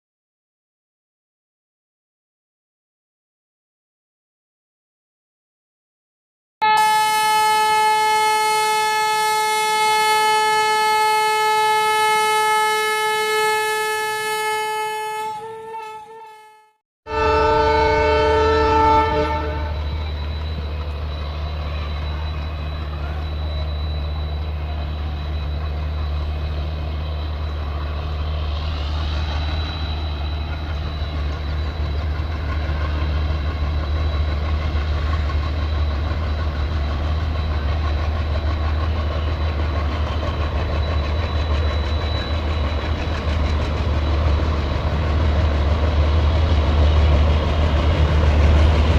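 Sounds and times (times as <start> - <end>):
train horn: 6.6 - 20.0
diesel locomotive engines running: 17.1 - 48.9.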